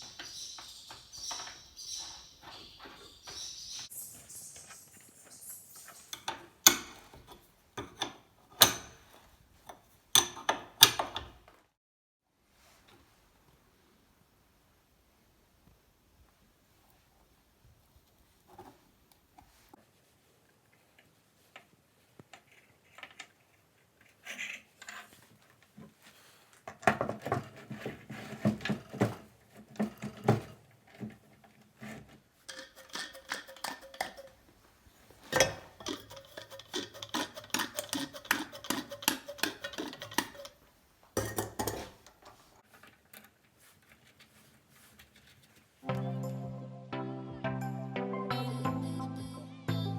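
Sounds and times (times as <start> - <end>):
metal vise parts clicking: 32.5 - 34.4, 35.3 - 40.6.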